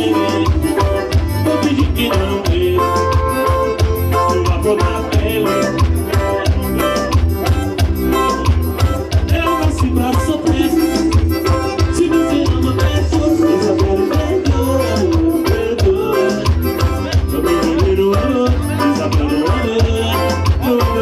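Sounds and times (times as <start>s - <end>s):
band playing instrumental music: 0.0s - 21.0s.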